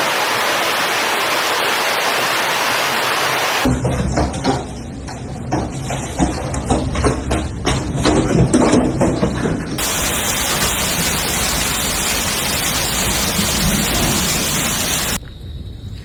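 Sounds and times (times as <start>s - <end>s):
heavy rain and hail: 9.8s - 15.2s.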